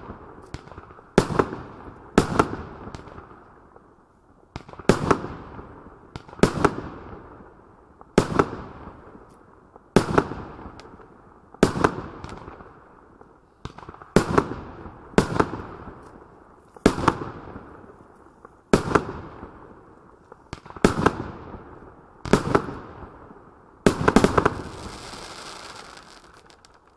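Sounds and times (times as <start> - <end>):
firework hiss: 24.2 - 26.9.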